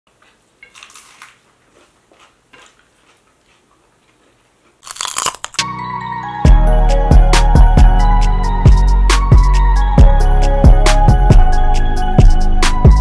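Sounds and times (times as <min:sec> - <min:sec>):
crunching bites into chili pepper: 0:04.8 - 0:05.7
music with a beat: 0:05.8 - 0:13.0.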